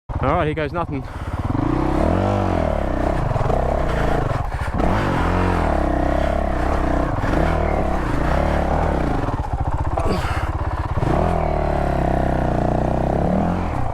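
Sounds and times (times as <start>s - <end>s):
motorcycle engine revving: 0.1s - 13.9s
clatter: 1.6s - 11.7s.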